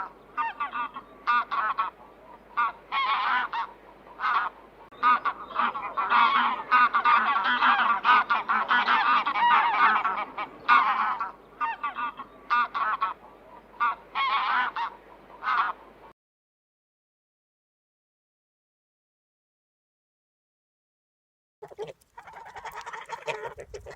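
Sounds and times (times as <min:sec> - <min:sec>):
geese honking: 0:00.0 - 0:16.1, 0:21.6 - 0:23.9.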